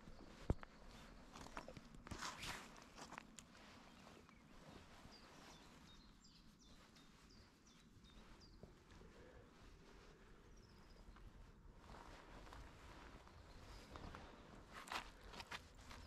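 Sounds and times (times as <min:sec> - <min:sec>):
faint bird chirps: 0:03.5 - 0:14.5.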